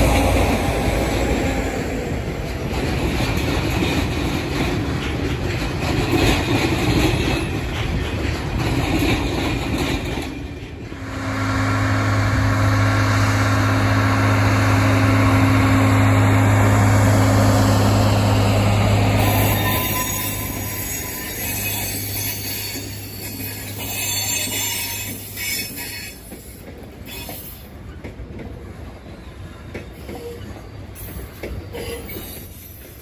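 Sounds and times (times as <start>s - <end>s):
train engines droning: 0.0s - 33.0s
train wagons rolling past: 0.0s - 33.0s.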